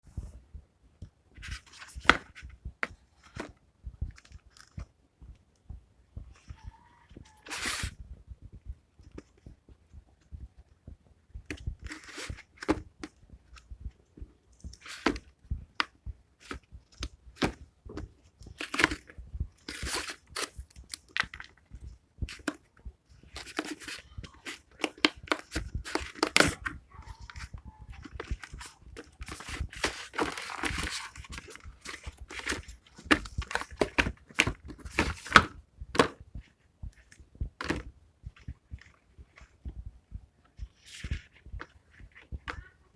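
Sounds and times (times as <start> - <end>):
paper tearing and crinkling: 7.5 - 7.9, 19.7 - 20.6, 28.5 - 34.0.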